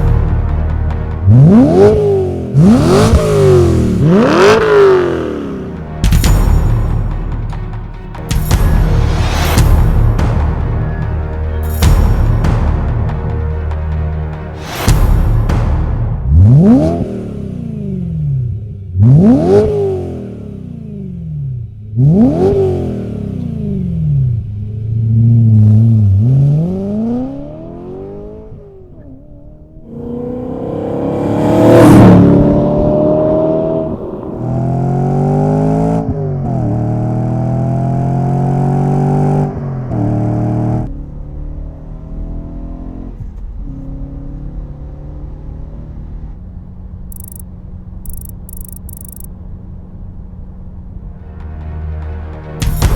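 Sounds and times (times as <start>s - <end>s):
car engine revving and accelerating: 1.0s - 5.8s, 16.3s - 46.4s.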